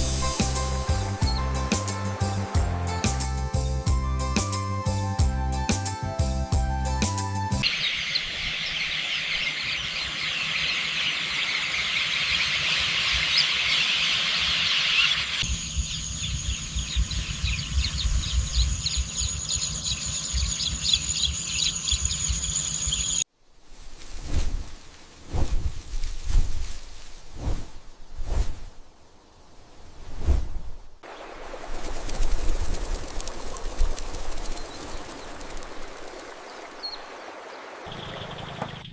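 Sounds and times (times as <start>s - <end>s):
dense high-pitched chirping: 7.6s - 23.2s.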